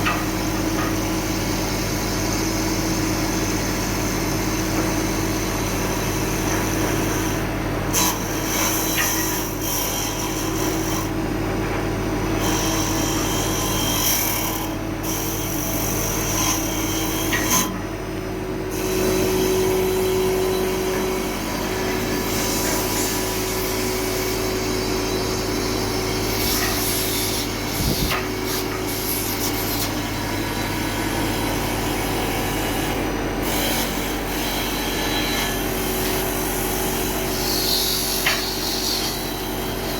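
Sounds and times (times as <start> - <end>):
lathe cutting wood: 0.3 - 11.3, 11.9 - 17.8, 18.4 - 39.9
machine hum: 16.4 - 38.0.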